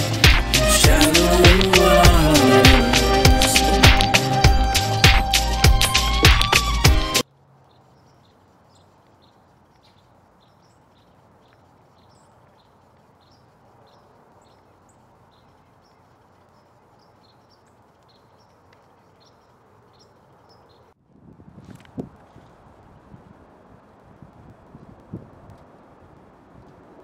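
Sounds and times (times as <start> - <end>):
steady low hiss: 0.0 - 27.0
small birds chirping: 7.6 - 21.0.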